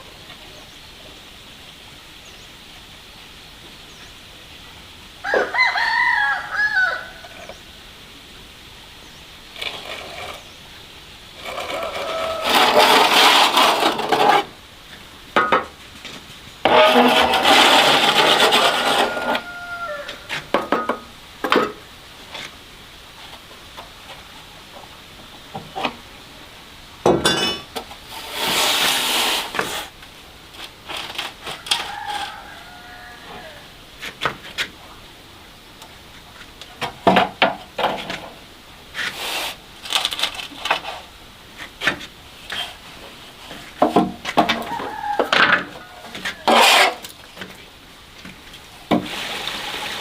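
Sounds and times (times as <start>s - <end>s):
harsh scraping: 11.4s - 14.6s, 16.6s - 20.4s, 28.1s - 29.9s, 46.0s - 47.1s.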